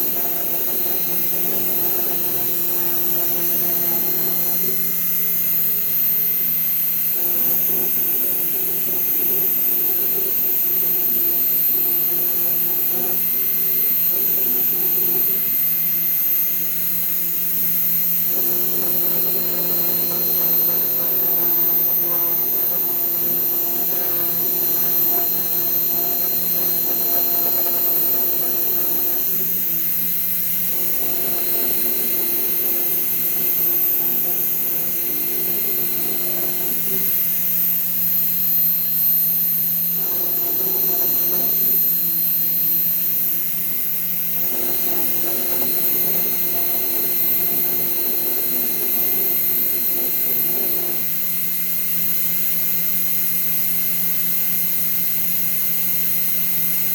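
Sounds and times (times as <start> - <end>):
router high-pitched whine: 0.0 - 56.9
low motor tones: 18.2 - 38.6.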